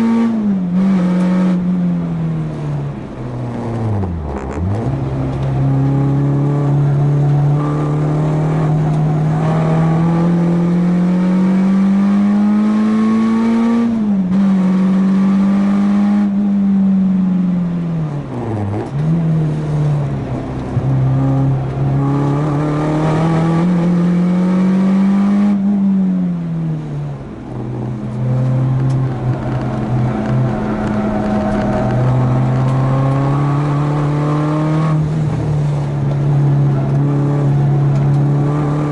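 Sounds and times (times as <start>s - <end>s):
car engine accelerating: 0.0s - 38.9s.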